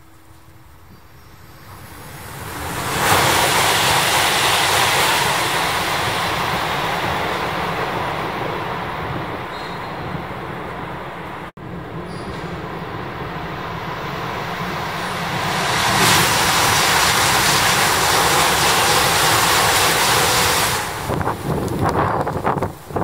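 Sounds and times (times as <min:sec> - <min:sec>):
train rushing through tunnel: 0:00.0 - 0:23.0.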